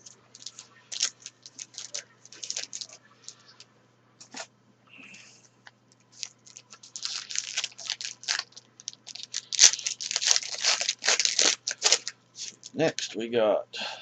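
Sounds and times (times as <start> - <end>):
foil wrapper tearing and crinkling: 0.0 - 3.0, 6.2 - 13.1.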